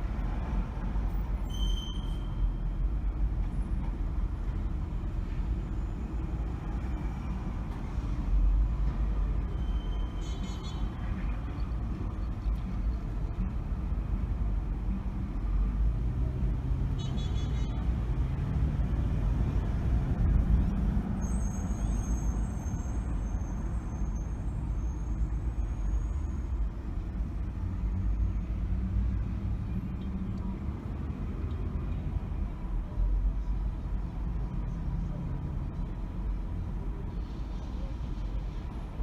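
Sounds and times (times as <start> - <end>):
car engine and road rumble: 0.0 - 39.0
high thin squeal: 1.5 - 2.4.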